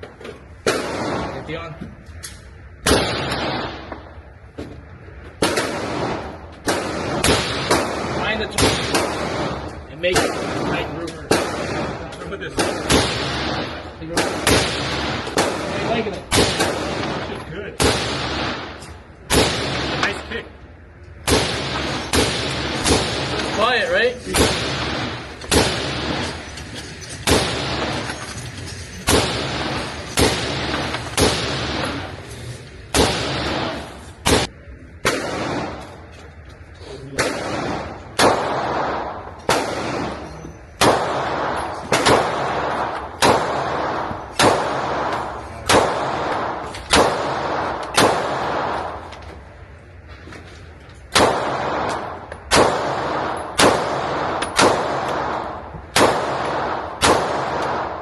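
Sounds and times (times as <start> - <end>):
gunshots echoing indoors: 0.5 - 1.6, 2.7 - 4.5, 5.1 - 32.2, 32.8 - 36.4, 37.1 - 49.8, 51.1 - 58.0.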